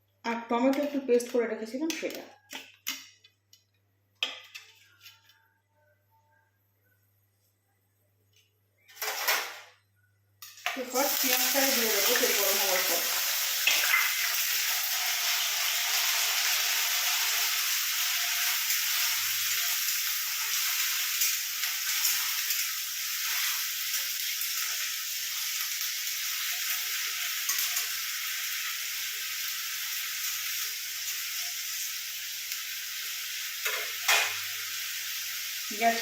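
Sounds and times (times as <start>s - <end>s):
paste sizzling in hot oil: 10.8s - 36.0s.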